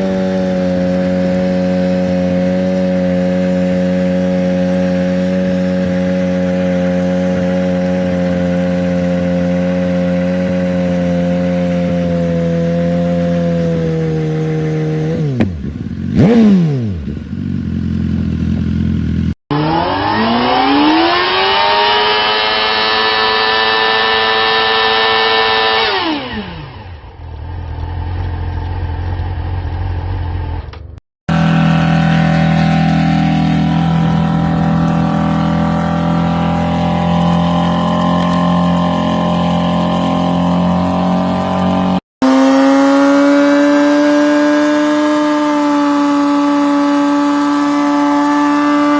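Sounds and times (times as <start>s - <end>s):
motorcycle engines revving: 0.0s - 48.9s.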